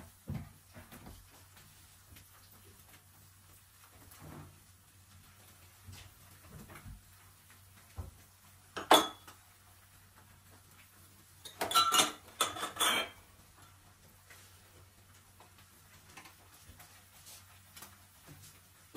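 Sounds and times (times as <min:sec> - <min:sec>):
dishes and cutlery clinking: 0:08.8 - 0:09.4, 0:11.4 - 0:13.2.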